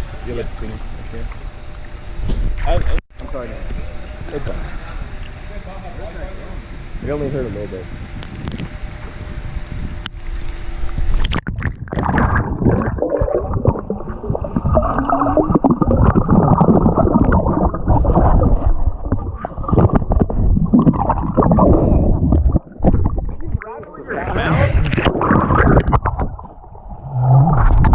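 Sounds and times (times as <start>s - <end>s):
underwater gurgling and sloshing: 8.0s - 27.9s.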